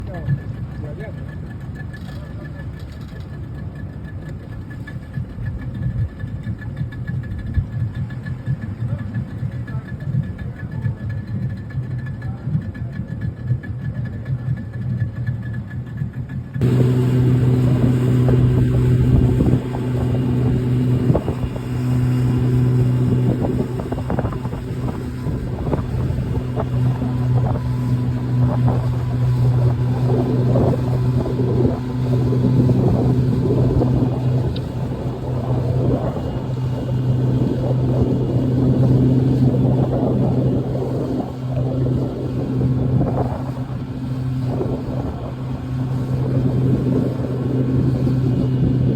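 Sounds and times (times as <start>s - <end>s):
motorboat engine running: 0.0s - 48.9s
water splashing against hull: 0.0s - 48.9s
rushing wind: 16.6s - 48.9s.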